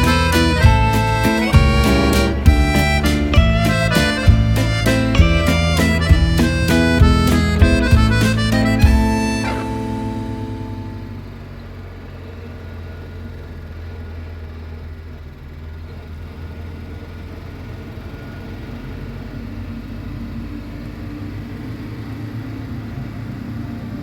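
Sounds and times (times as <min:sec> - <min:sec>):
background music: 0:00.0 - 0:11.3
vehicle engine rumbling: 0:00.0 - 0:24.0.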